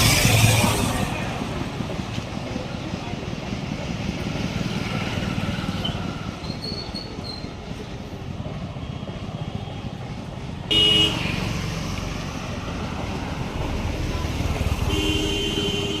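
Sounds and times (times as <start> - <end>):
engine and road rumble: 0.0 - 16.0
vehicle horn honking: 10.7 - 11.4, 14.8 - 16.0.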